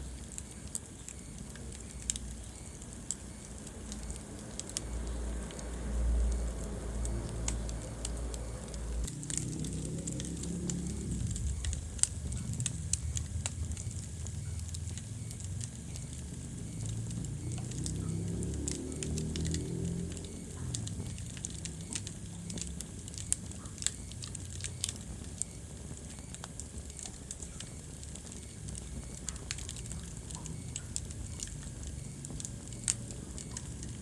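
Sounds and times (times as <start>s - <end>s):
wood fire crackling and popping: 0.0s - 34.0s
low rumble: 4.8s - 18.8s.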